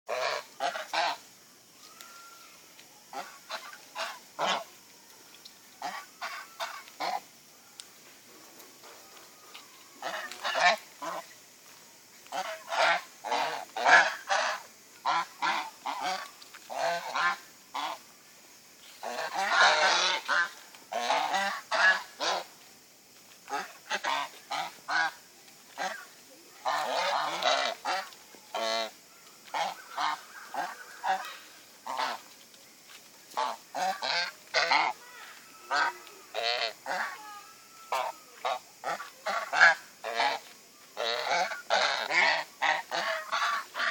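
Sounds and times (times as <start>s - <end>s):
geese honking: 0.1s - 1.2s, 3.1s - 4.7s, 5.8s - 7.2s, 9.1s - 11.3s, 12.3s - 18.0s, 19.0s - 22.5s, 23.5s - 25.2s, 25.8s - 32.3s, 33.3s - 40.4s, 41.0s - 43.9s.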